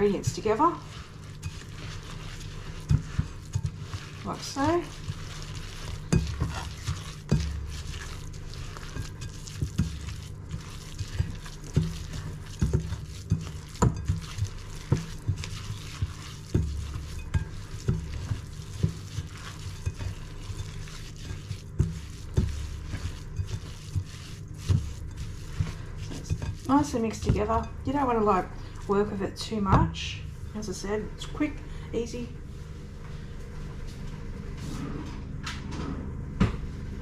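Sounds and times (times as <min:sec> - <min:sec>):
utensil scraping mixing bowl: 0:00.0 - 0:31.4.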